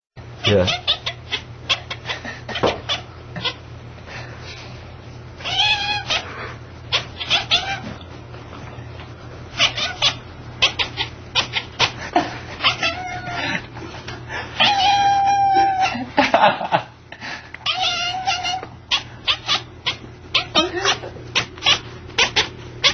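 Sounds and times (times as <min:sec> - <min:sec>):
cat making bark-like calls: 0:17.6 - 0:22.9.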